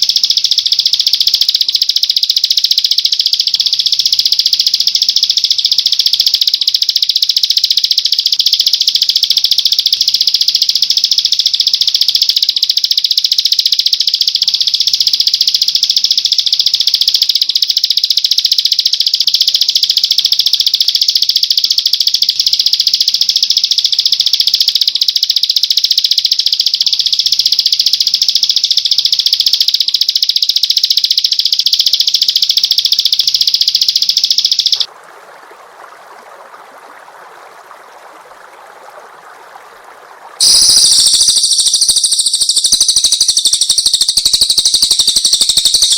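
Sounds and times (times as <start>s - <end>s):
songbird trilling: 40.4s - 45.9s.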